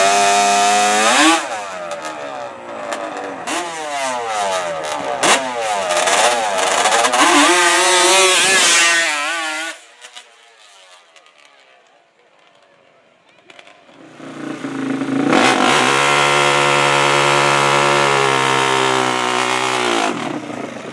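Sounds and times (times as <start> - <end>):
atv engines revving: 0.0 - 11.4, 13.5 - 20.9.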